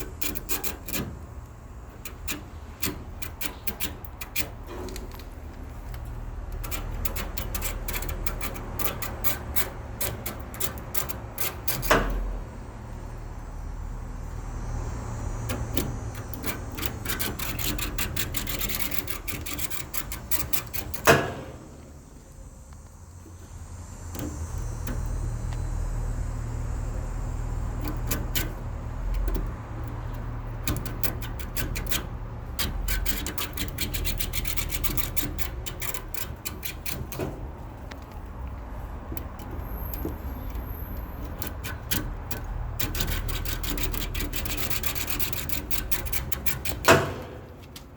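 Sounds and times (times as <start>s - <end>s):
comb clicking on metal fins: 0.0s - 12.2s, 27.8s - 47.9s.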